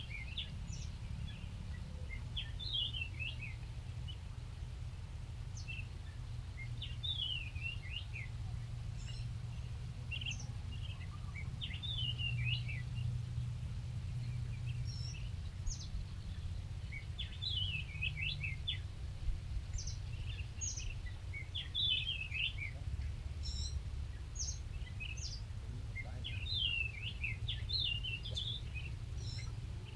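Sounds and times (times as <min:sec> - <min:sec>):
small birds chirping: 0:00.0 - 0:04.2, 0:06.8 - 0:13.6, 0:14.2 - 0:29.9
steady low rumble: 0:08.3 - 0:29.9.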